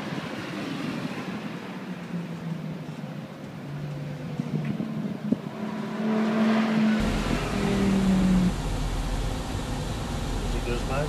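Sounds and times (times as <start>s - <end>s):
sports car engines running: 0.0s - 11.0s
car driving past: 4.5s - 10.6s
steady low rumble: 7.0s - 11.0s.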